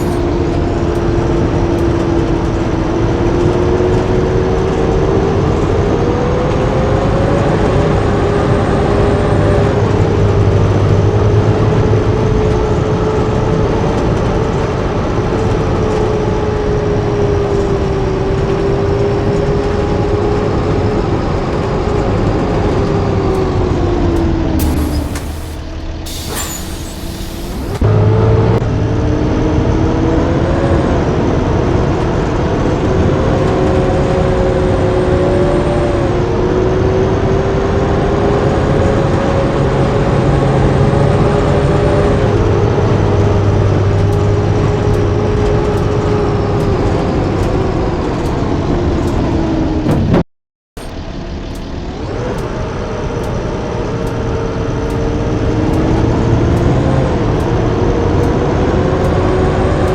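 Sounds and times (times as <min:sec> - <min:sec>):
bus engine running: 0:00.0 - 0:59.9
short hiss: 0:24.6 - 0:27.8.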